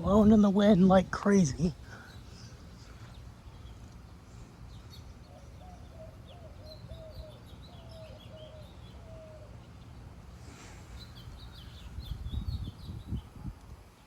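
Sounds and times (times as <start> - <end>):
wind rumbling on microphone: 0.0 - 2.0, 11.2 - 14.0
birds chirping: 0.0 - 14.0.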